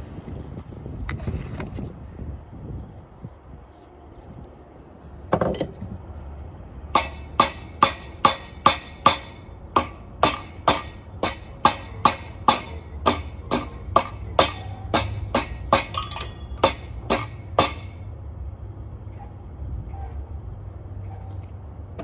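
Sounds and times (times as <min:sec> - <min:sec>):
hammer striking metal: 0:06.9 - 0:18.0.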